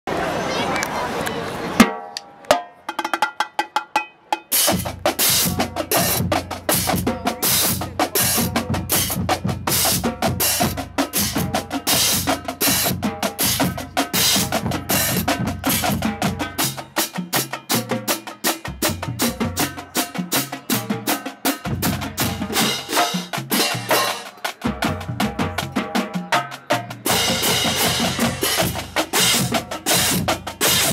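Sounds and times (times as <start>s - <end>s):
bass drums: 4.7s - 17.0s, 17.7s - 20.1s, 20.7s - 26.1s, 26.8s - 30.9s.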